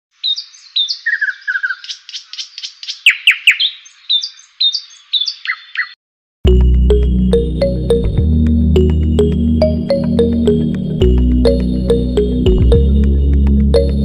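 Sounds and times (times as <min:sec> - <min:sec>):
birds chirping: 0:00.2 - 0:06.0.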